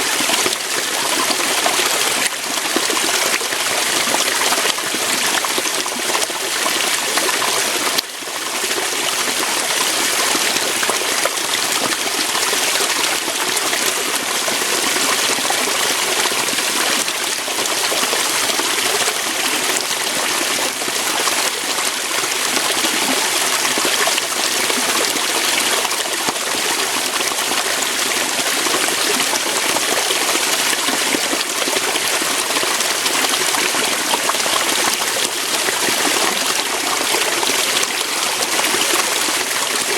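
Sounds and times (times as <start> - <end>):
water pouring over rocks: 0.0 - 39.9.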